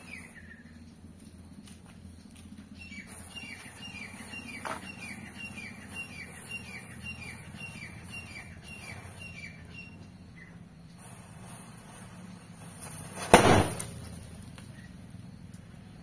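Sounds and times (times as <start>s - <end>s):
bird chirping: 0.0s - 11.2s.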